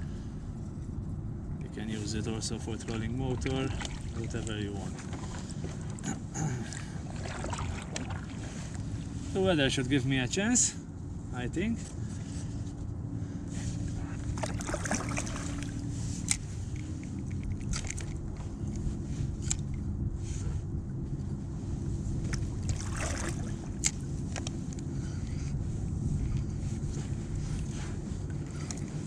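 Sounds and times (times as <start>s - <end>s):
low wind rumble on microphone: 0.0s - 29.0s
water splashing against a kayak: 2.7s - 9.3s, 13.9s - 18.9s, 22.1s - 24.6s.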